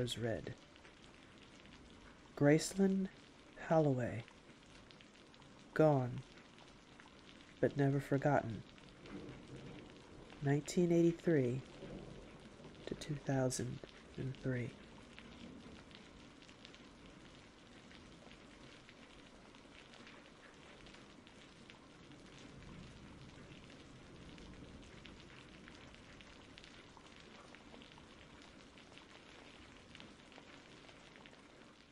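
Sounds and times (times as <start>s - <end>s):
rain pattering: 0.0s - 31.9s.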